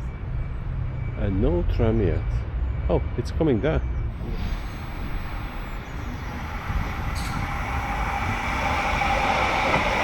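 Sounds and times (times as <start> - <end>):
tram rumbling on rails: 0.0 - 10.0
high steady whine: 4.1 - 10.0.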